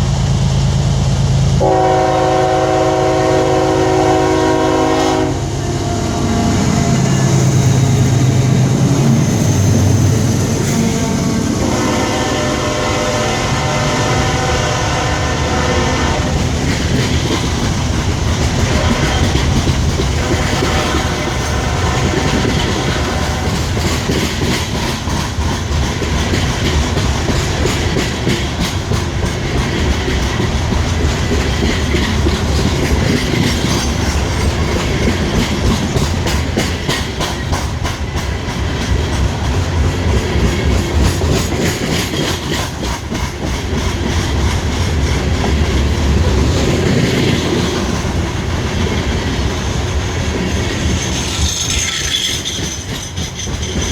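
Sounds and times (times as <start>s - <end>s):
train rumbling by: 0.0s - 53.9s
locomotive horn: 1.6s - 7.4s, 10.6s - 16.5s, 18.6s - 23.8s
wheels clicking over rail joints: 16.3s - 53.9s.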